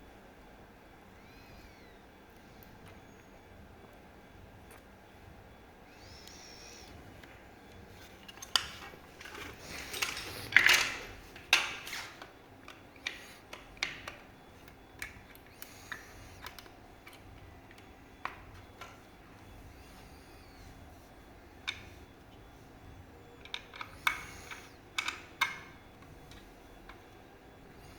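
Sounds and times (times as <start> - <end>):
clicks and clatter of tools: 8.2 - 14.2.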